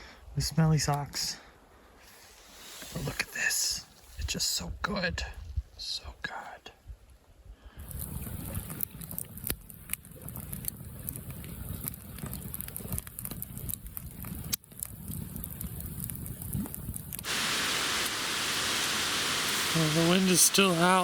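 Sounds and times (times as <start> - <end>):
rain hissing: 2.1 - 3.4, 17.2 - 21.0
wind rumbling on microphone: 6.8 - 18.0.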